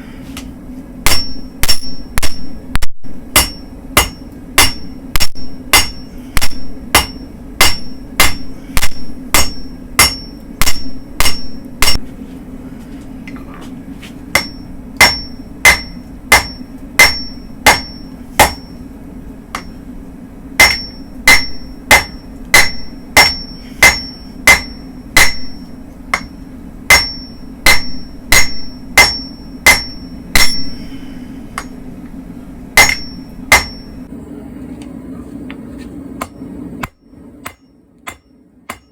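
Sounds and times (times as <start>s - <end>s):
low hum: 0.0s - 38.9s
hammer striking steel on anvil: 1.0s - 12.1s, 14.3s - 18.8s, 19.5s - 19.8s, 20.6s - 31.9s, 32.8s - 34.1s, 36.2s - 38.9s.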